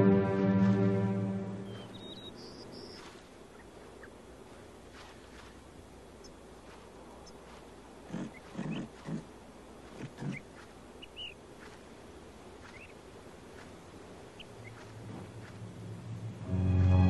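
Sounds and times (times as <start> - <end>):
high bird chirps: 1.6 - 4.2, 11.0 - 11.8, 12.6 - 13.0, 14.4 - 15.5.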